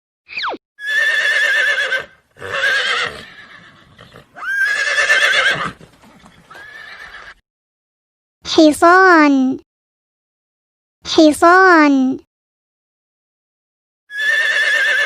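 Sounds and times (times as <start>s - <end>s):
horse neighing: 0.8s - 7.4s, 14.1s - 15.0s.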